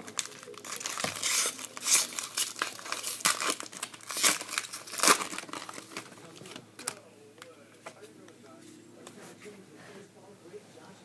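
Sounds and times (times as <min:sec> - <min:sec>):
card pack wrapper tearing and crinkling: 0:00.0 - 0:07.0.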